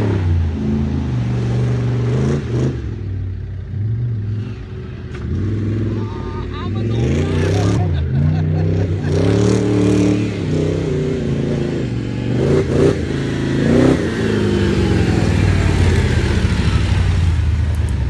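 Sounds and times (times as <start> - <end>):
engine running and revving: 0.0 - 18.0.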